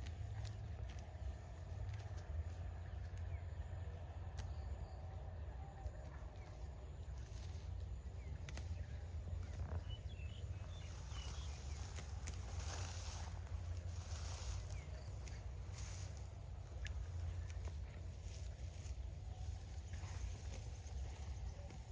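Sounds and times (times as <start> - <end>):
faint clicks: 0.0 - 5.0, 5.8 - 9.9
low rumble: 0.0 - 21.9.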